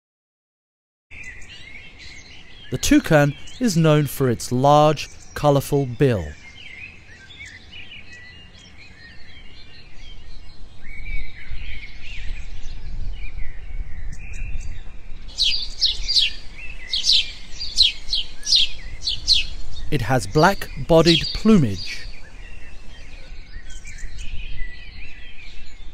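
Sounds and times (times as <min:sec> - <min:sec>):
high falling bird calls: 0:01.2 - 0:10.0, 0:15.3 - 0:25.2
birds chirping: 0:01.2 - 0:10.8, 0:15.3 - 0:25.9.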